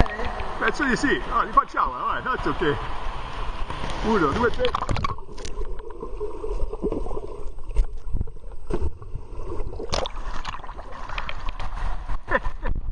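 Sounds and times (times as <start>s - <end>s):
paddle splashing water: 3.2s - 12.7s.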